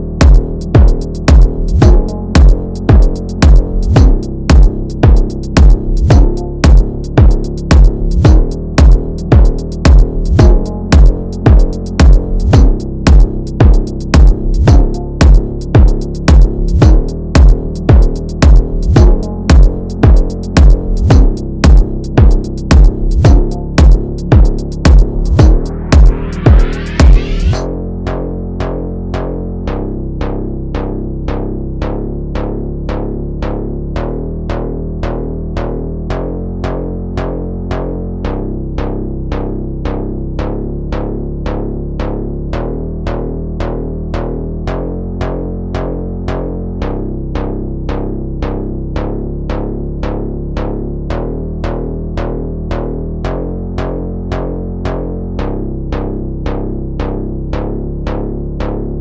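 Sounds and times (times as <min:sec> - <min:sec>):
drum machine beat: 0:00.0 - 0:27.6
electronic funk instrumental: 0:00.0 - 0:27.6
low bass line: 0:00.0 - 0:59.0.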